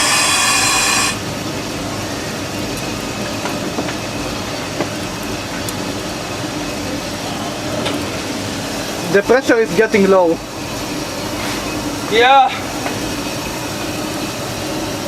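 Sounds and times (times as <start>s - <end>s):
loud steam hissing blast: 0.0s - 1.4s.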